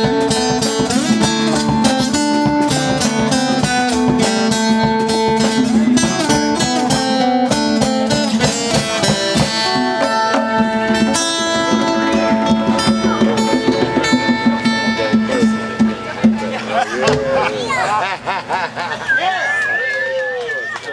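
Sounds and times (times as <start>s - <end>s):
hand drums: 0.0s - 17.7s
acoustic guitars strumming: 0.0s - 19.1s.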